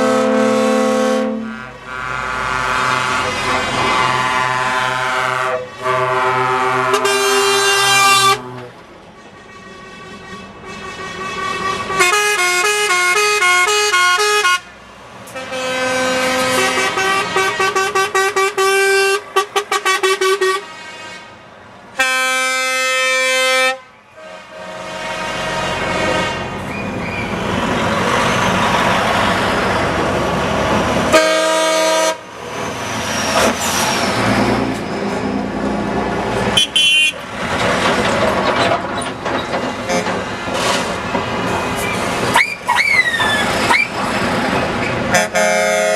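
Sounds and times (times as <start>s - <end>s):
two-note truck horn: 0.0s - 14.7s, 15.4s - 21.3s, 22.0s - 26.6s, 31.1s - 32.2s, 45.1s - 45.9s
long air horn blast: 0.0s - 26.6s, 31.1s - 32.3s, 36.5s - 37.2s, 45.1s - 45.9s
diesel truck engines: 0.0s - 45.9s
road noise: 0.0s - 45.9s.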